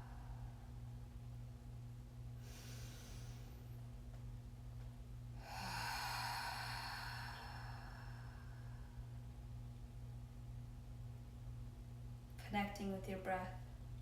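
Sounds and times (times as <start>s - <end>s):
person breathing deeply: 2.4s - 3.7s, 5.4s - 9.3s.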